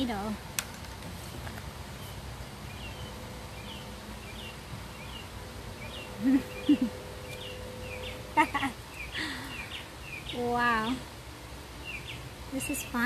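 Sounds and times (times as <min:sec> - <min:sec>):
bird chirping: 0:02.0 - 0:11.0, 0:11.8 - 0:13.0.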